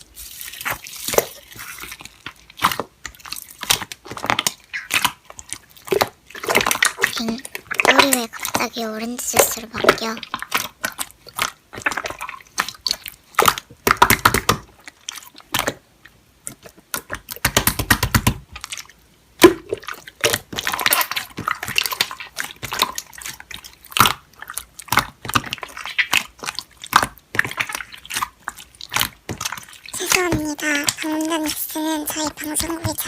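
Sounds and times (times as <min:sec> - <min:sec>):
slime squishing with wet pops: 0:00.0 - 0:33.0.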